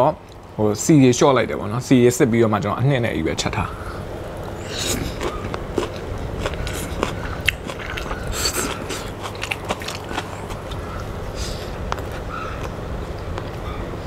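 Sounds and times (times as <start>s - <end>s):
chewing noodles: 4.4s - 13.7s.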